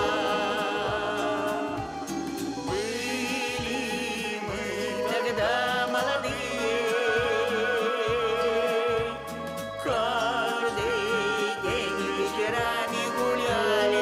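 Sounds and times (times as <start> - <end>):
person singing with vibrato: 0.0 - 14.0
steady bass accompaniment: 0.0 - 14.0.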